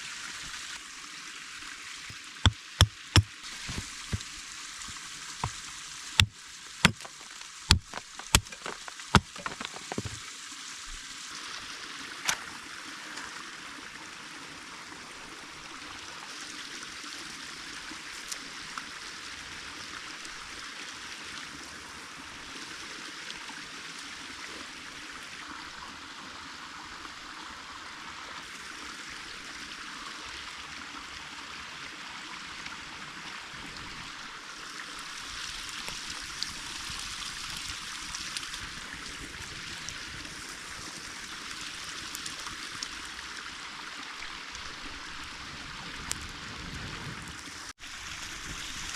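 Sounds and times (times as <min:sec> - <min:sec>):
creek water running: 0:00.0 - 0:48.9
sharp knocks or cracks: 0:02.5 - 0:04.2, 0:06.2 - 0:10.2.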